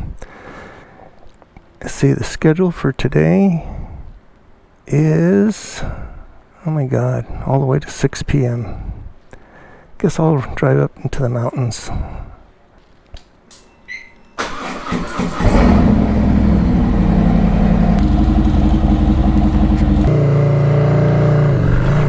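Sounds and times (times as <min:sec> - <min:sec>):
motorcycle engine starting and idling: 0:14.4 - 0:22.0.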